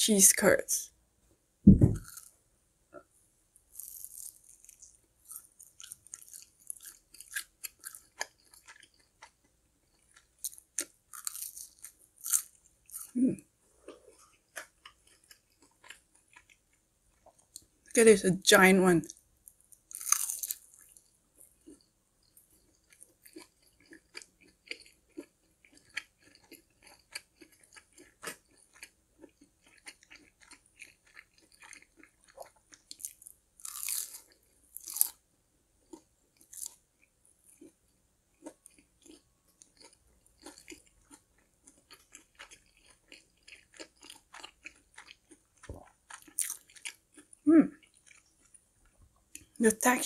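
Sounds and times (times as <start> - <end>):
crunching bites: 1.8 - 2.3, 3.7 - 13.2, 19.8 - 21.0, 22.8 - 35.2
chewing with crisp crackles: 2.9 - 18.0, 19.0 - 49.6.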